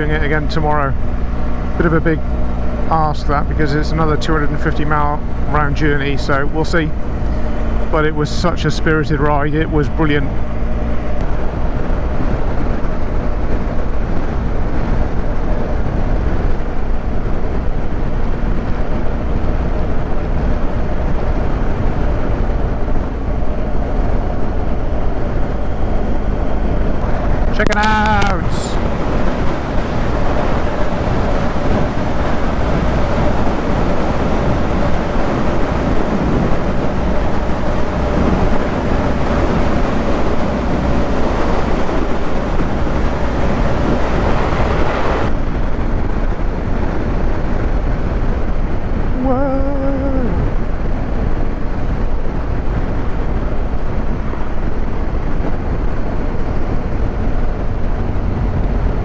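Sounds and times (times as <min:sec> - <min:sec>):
wind rush on microphone: 0:00.0 - 0:59.0
brief pitched voice-like sound: 0:27.5 - 0:28.8, 0:49.2 - 0:50.4.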